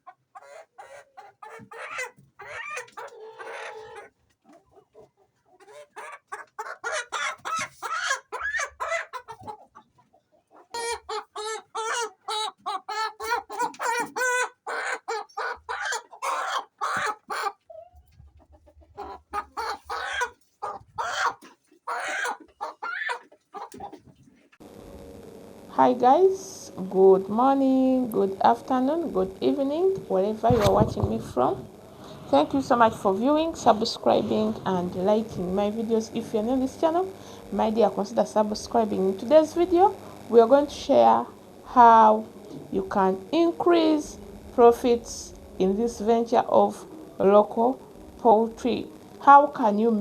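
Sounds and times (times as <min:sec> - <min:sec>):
chickens clucking: 0:00.0 - 0:24.6.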